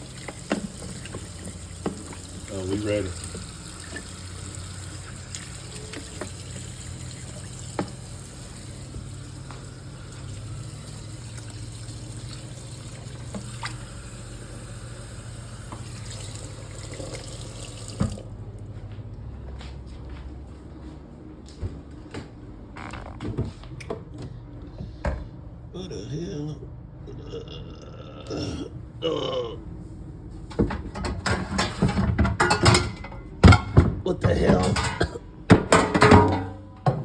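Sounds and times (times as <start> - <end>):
kitchen tap running: 0.0 - 18.3.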